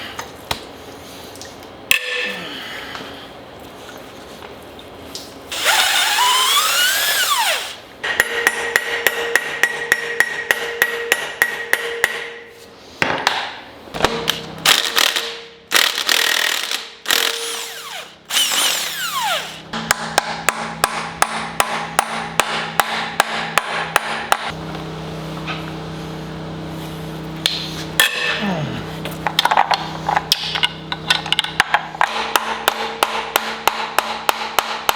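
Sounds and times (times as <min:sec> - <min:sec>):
impact wrench hammering: 0:05.5 - 0:12.5, 0:13.1 - 0:24.6, 0:27.4 - 0:28.5, 0:29.2 - 0:34.9.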